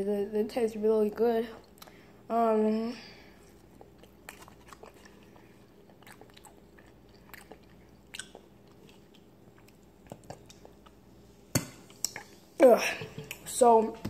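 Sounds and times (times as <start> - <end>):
person chewing food: 3.3 - 12.5.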